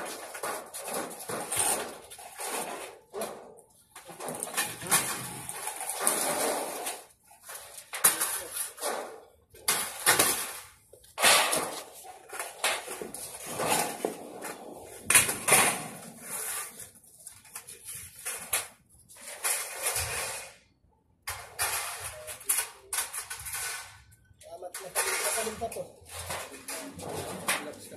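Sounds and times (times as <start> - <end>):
sheet metal clattering on concrete: 0.0 - 16.8, 24.6 - 27.9.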